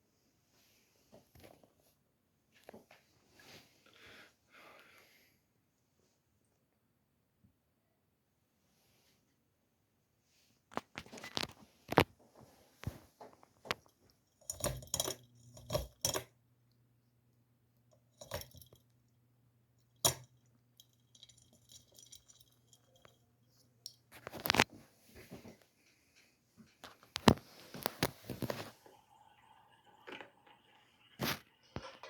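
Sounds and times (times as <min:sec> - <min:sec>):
metal chain jingling: 0:20.8 - 0:23.2.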